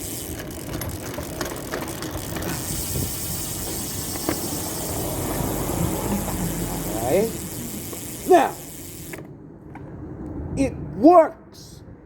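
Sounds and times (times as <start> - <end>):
bicycle mechanism clicking: 0.0 - 9.4.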